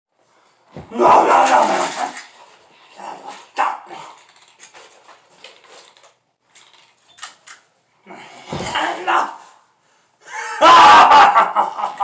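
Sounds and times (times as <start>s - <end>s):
people talking: 8.6s - 9.4s
people laughing: 10.2s - 12.0s.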